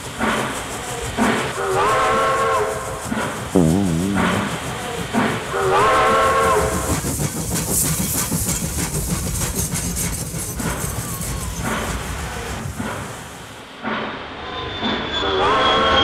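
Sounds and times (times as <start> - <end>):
train chugging along track: 0.0 - 16.0
wavering low tone: 3.6 - 4.9.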